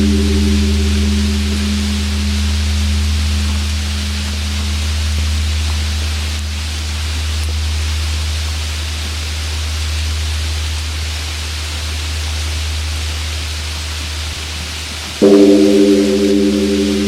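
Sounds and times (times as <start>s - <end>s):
temple bell ringing: 0.0s - 6.6s, 15.2s - 17.0s
rain hiss: 0.0s - 17.0s.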